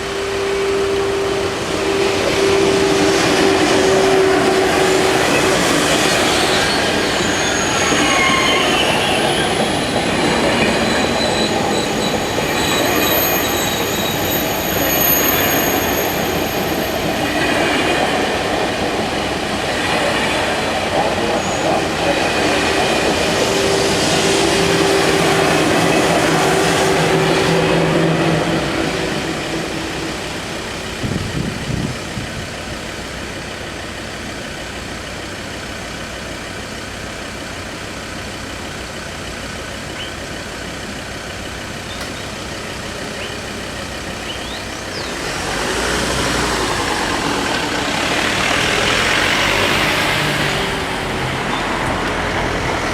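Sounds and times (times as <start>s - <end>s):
high-speed train passing: 0.0s - 52.9s
road vehicle passing close by: 45.1s - 52.9s.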